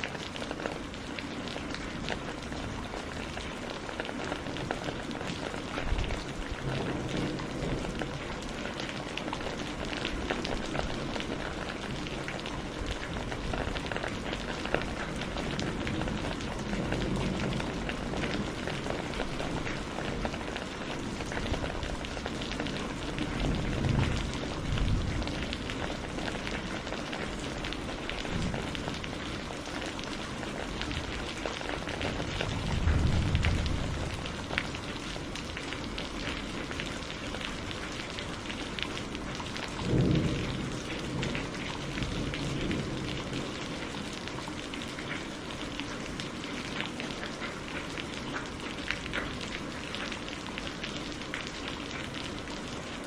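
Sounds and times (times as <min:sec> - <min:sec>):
steady rain: 0:00.0 - 0:53.0
thunder rumbling: 0:04.7 - 0:29.9, 0:30.5 - 0:36.0, 0:39.2 - 0:44.0.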